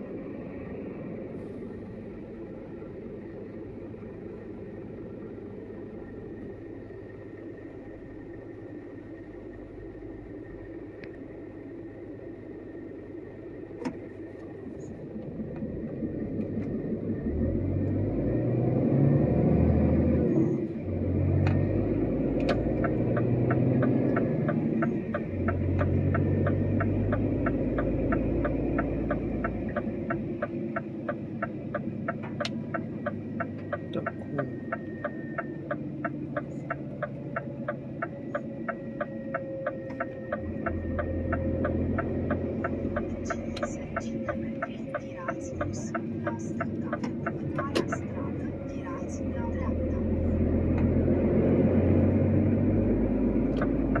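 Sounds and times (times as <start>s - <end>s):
truck diesel engine: 0.0s - 54.0s
turn indicator ticking: 21.3s - 54.0s.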